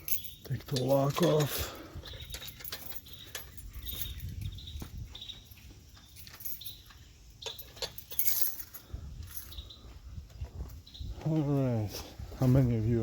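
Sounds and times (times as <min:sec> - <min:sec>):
lock and latch rattling: 0:00.0 - 0:08.8.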